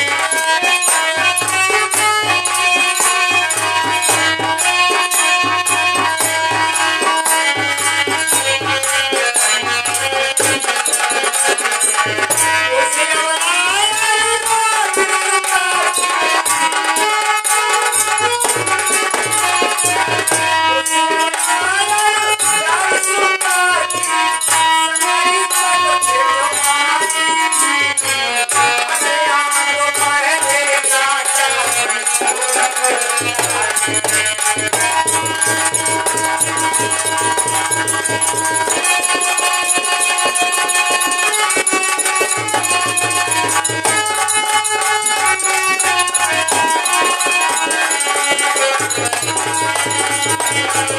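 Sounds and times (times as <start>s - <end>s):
melodic lead instrument: 0.0s - 50.9s.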